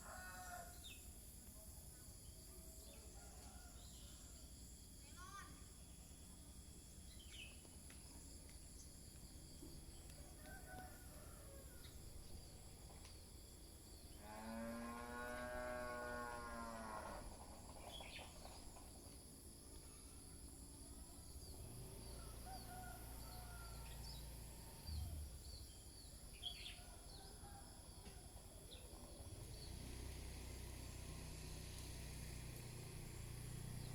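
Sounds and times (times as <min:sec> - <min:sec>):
high insect drone: 0:00.0 - 0:33.9
cow mooing: 0:14.2 - 0:17.3.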